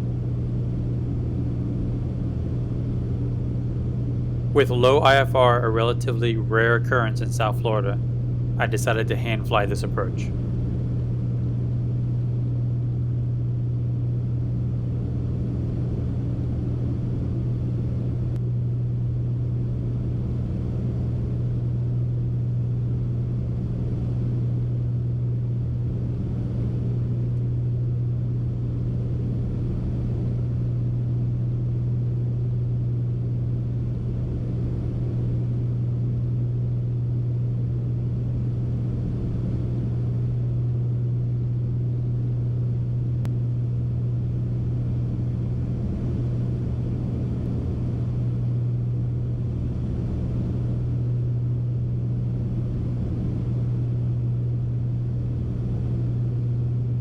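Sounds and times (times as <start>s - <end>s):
twin piston engines droning: 4.6s - 8.0s, 8.6s - 10.3s.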